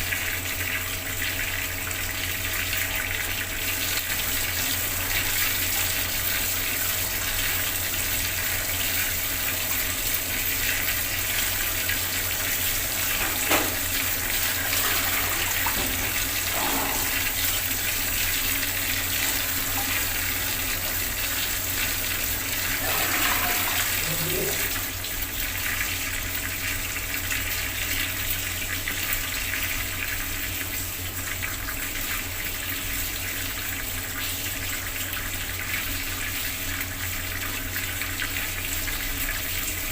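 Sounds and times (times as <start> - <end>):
tap water splashing into basin: 10.2 - 27.4.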